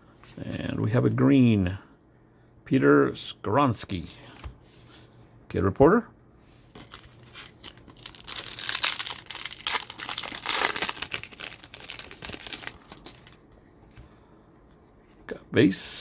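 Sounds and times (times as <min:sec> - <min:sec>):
foil wrapper crinkling and tearing: 0:06.7 - 0:13.5.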